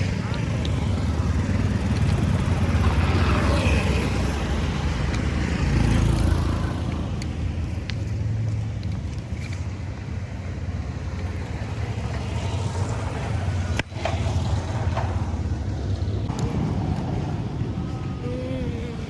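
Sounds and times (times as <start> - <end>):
tractor diesel engine running: 0.0 - 8.4.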